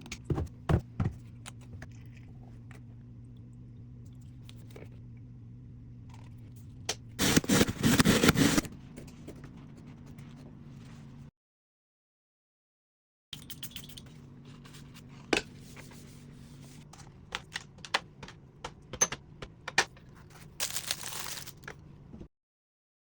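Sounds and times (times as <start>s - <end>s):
low steady hum: 0.0s - 11.3s.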